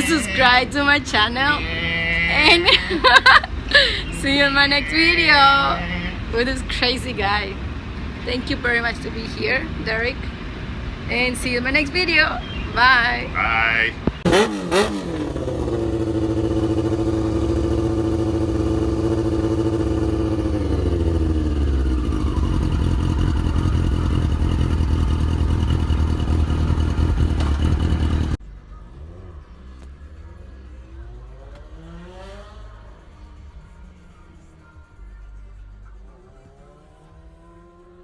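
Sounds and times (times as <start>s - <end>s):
motorcycle engine running: 14.1s - 33.0s.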